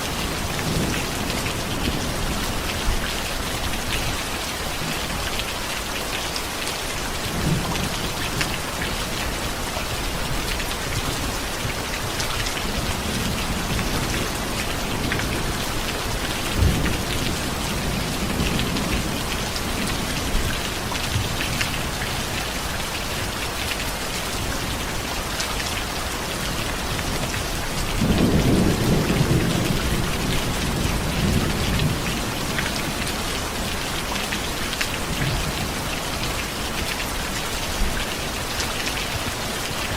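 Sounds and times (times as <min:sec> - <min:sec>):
steady rain falling: 0:00.0 - 0:39.9
rolling thunder: 0:27.8 - 0:33.3.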